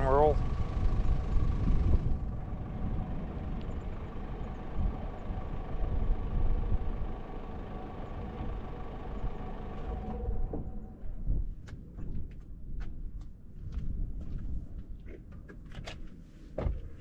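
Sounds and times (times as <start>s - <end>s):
faint steady hum tones: 0.0s - 12.8s
van engine and road rumble: 0.0s - 17.0s.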